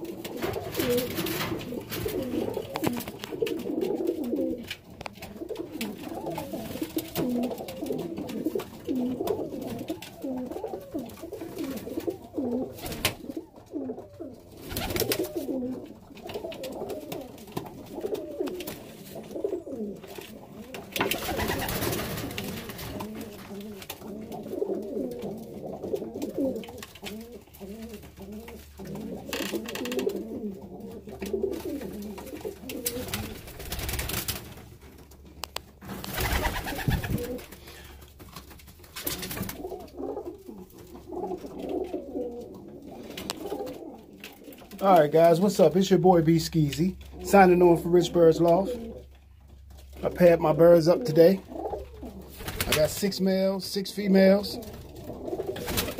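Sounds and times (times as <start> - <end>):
wings flapping: 0.0 - 13.4, 14.5 - 25.2, 31.2 - 34.7, 35.8 - 42.1, 51.4 - 53.1, 54.3 - 55.9
pigeons cooing: 0.0 - 34.2, 35.9 - 38.2, 39.0 - 55.9.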